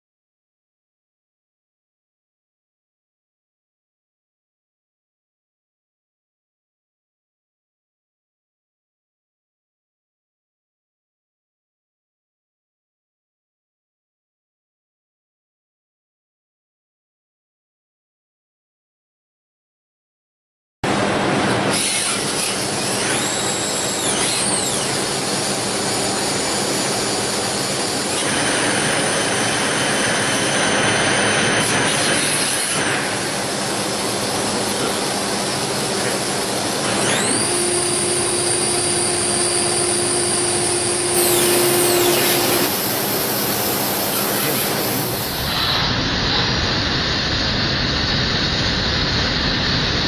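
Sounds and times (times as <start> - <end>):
steady machine hum: 20.8 - 50.0
high spindle whine: 20.9 - 50.0
lathe cutting and coolant noise: 20.9 - 50.0.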